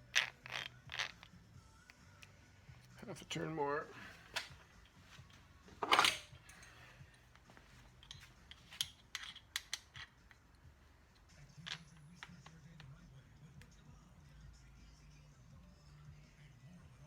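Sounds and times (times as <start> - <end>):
metal tool scraping: 5.7 - 6.9.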